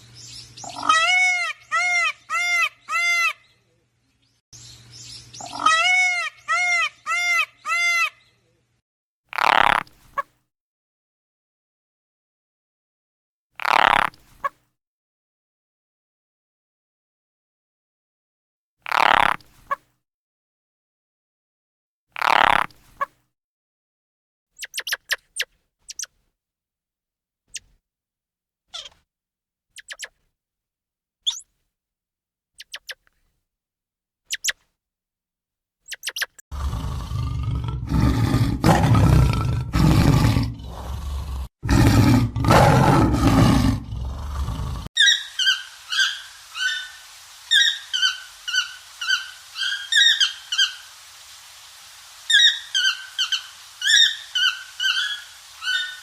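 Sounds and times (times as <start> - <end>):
animal calls and thin chirps: 0.2 - 3.4, 24.6 - 26.1, 28.7 - 29.0, 29.8 - 30.1, 31.2 - 31.5, 34.3 - 34.6, 35.9 - 37.1, 42.6 - 51.3, 52.2 - 56.0
repeated high bird calls: 0.2 - 3.7, 4.6 - 8.5, 24.6 - 26.1, 28.7 - 29.0, 29.8 - 30.1, 31.2 - 31.5, 32.6 - 33.0, 34.3 - 34.6, 35.9 - 37.1, 45.0 - 51.0, 52.3 - 56.0
loud deep roaring: 36.5 - 44.9.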